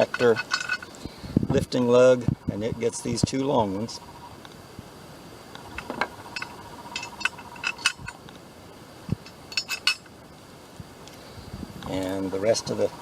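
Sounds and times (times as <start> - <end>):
metal bolts clinking: 0.0 - 1.0, 5.7 - 8.2, 9.1 - 10.1.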